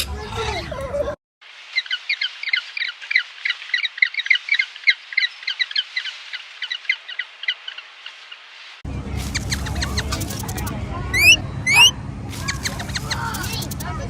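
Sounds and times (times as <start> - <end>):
flock of birds calling: 1.8 - 8.5, 9.3 - 13.8.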